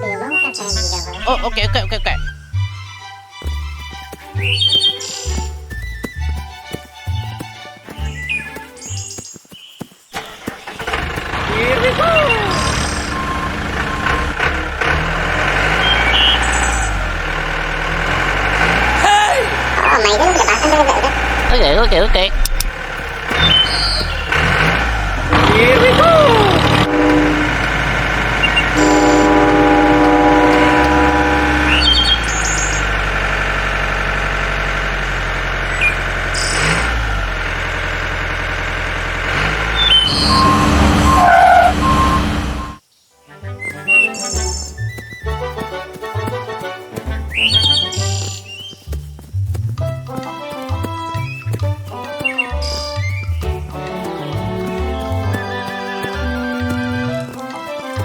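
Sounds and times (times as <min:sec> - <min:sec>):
small tractor engine hum: 0:00.0 - 0:09.4, 0:10.2 - 0:42.8, 0:43.9 - 0:58.0
short reversing beeps: 0:11.8 - 0:14.4, 0:39.8 - 0:42.8.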